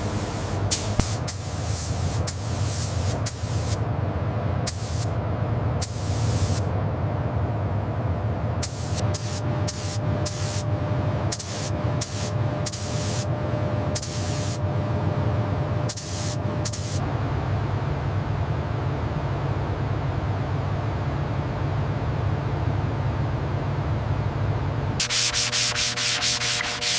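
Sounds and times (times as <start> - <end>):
steam hissing: 0.0 - 3.8, 25.0 - 26.9.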